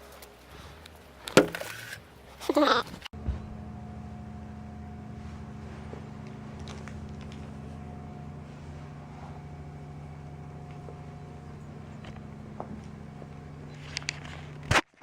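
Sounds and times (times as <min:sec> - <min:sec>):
low steady hum: 0:03.2 - 0:14.8.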